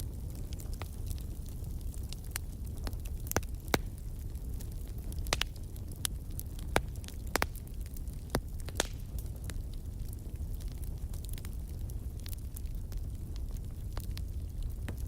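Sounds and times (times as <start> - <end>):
fire crackling and popping: 0.0 - 15.0
fire rumbling: 0.0 - 15.0.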